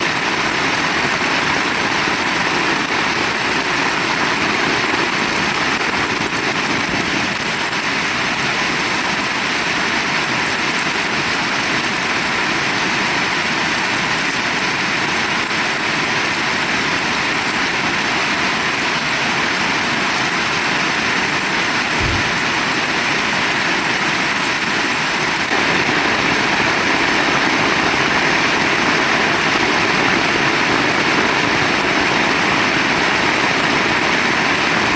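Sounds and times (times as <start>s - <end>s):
heavy rain: 0.0s - 34.9s
low thump: 22.0s - 22.7s.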